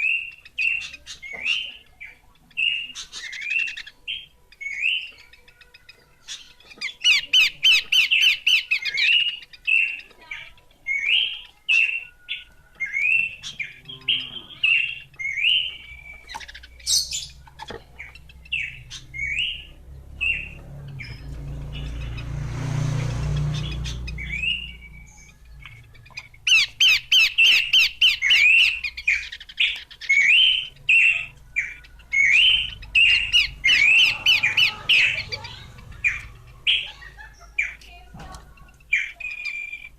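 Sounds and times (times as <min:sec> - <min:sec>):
low rumbling: 0:18.1 - 0:26.8.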